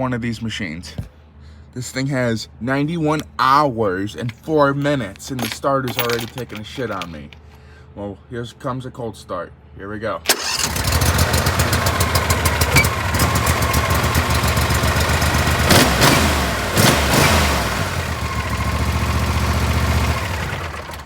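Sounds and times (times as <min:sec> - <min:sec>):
lawn tractor engine running: 0:10.3 - 0:21.0.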